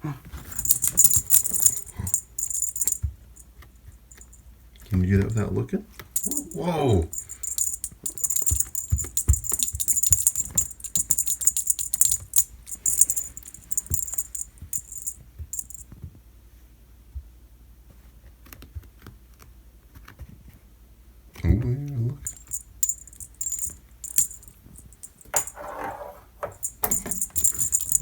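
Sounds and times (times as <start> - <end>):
cat toy jingling and rattling: 0.5 - 4.4, 6.2 - 15.8, 22.2 - 25.7, 26.4 - 28.0.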